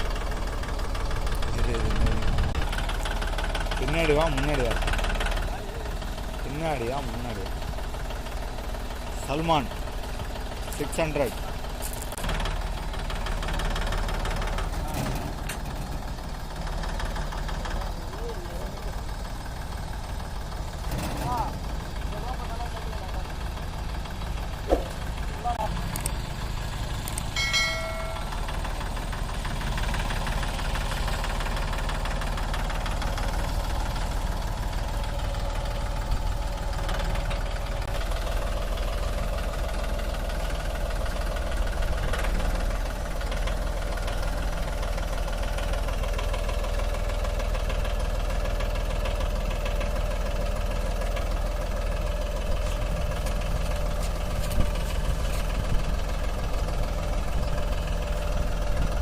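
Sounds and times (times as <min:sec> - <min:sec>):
tractor diesel engine running: 0:00.0 - 0:59.0
brief high tone: 0:27.4 - 0:28.4.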